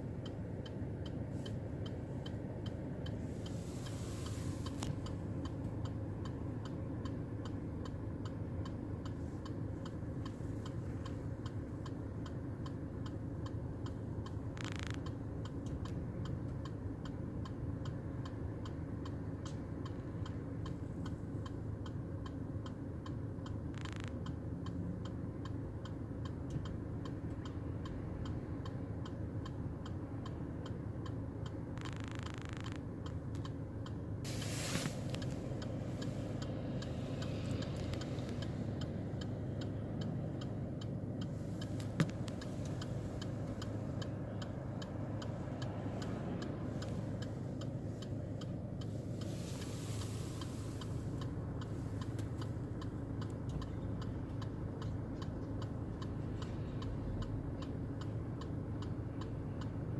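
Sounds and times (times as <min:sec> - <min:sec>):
rapid even ticking: 0:04.6 - 0:34.1, 0:35.2 - 0:49.3.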